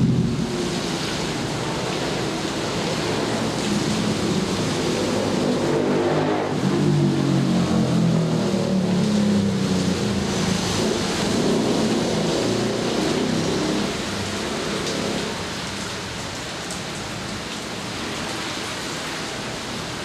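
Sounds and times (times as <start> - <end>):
low rumble of thunder: 0.0 - 5.6
steady rain: 0.0 - 20.0.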